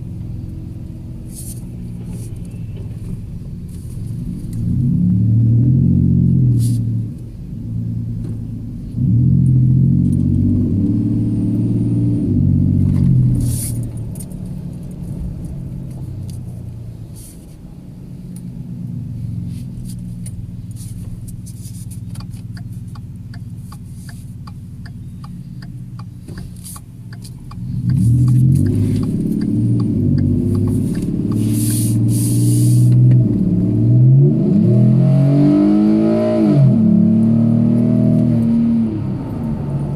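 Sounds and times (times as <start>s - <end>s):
truck engine accelerating: 0.0s - 17.2s, 18.4s - 39.9s
light ticking: 22.1s - 31.4s.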